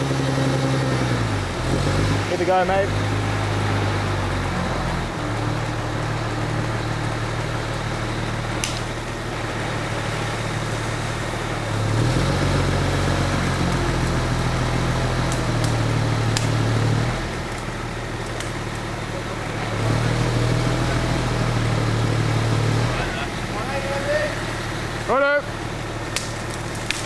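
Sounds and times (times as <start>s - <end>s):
crane engine running: 0.0s - 27.0s
sharp clicks: 8.5s - 9.0s, 15.2s - 16.7s, 26.1s - 27.0s.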